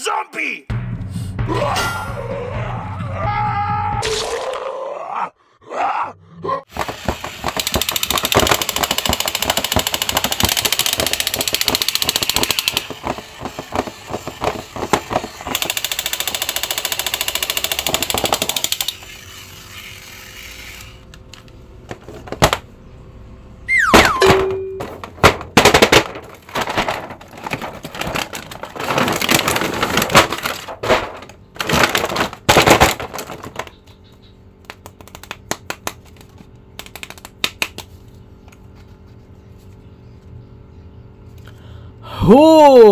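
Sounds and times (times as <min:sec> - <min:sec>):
plastic figures knocked together: 0:06.7 - 0:19.0, 0:21.9 - 0:22.7, 0:23.9 - 0:33.8, 0:34.6 - 0:37.9
toy clicking rattle: 0:07.6 - 0:13.0, 0:15.4 - 0:21.1
falling squeak: 0:23.7 - 0:24.3.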